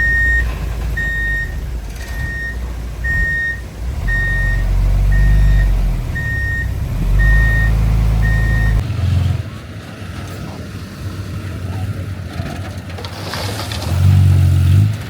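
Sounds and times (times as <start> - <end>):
reversing alarm beeping: 0.0 - 8.8
engine rumbling: 0.0 - 15.0.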